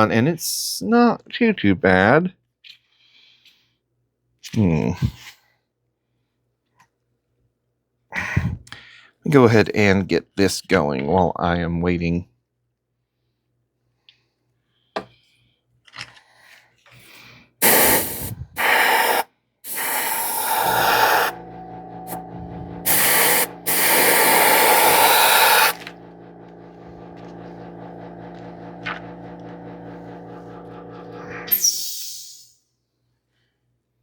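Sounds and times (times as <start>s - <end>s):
airbrush spraying hiss: 17.6s - 21.4s, 22.8s - 25.9s
compressor motor humming: 17.6s - 31.6s.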